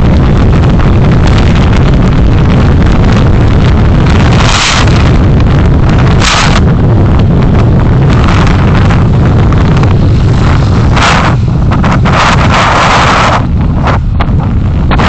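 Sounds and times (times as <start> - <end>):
road and engine rumble: 0.0 - 15.0
wind buffeting microphone: 0.0 - 15.0.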